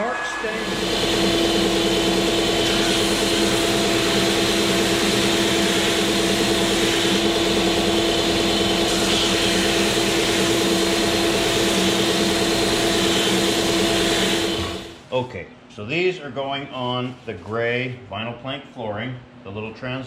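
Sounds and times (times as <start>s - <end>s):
electric motor whine and hum: 0.1s - 15.0s.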